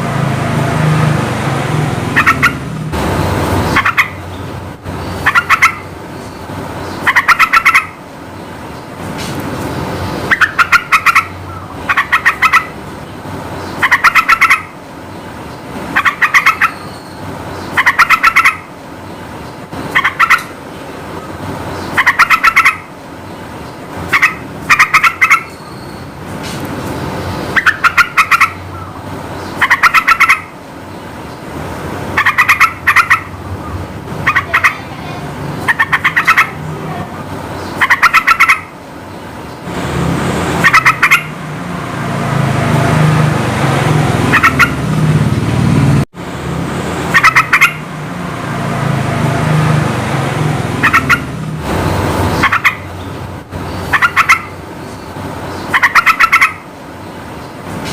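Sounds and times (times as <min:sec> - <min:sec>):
bulbul singing bubbling phrases: 0:34.2 - 0:37.3.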